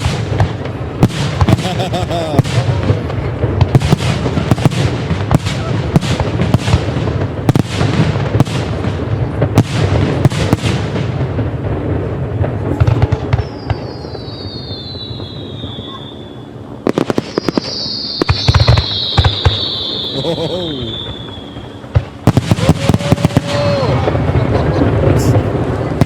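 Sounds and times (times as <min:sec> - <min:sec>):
fireworks bursts and bangs: 0:00.0 - 0:26.0
fireworks crackle: 0:00.0 - 0:26.0
falling whistle: 0:13.4 - 0:16.6, 0:17.3 - 0:21.8.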